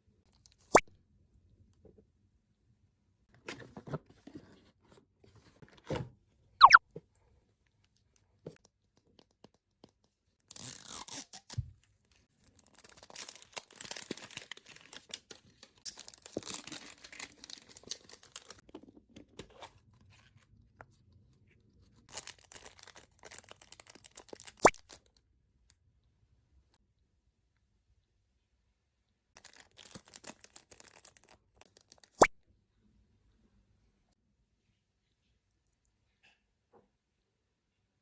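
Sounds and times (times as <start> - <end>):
packaging tearing and crinkling: 12.5 - 18.6, 22.1 - 25.0, 29.4 - 32.1.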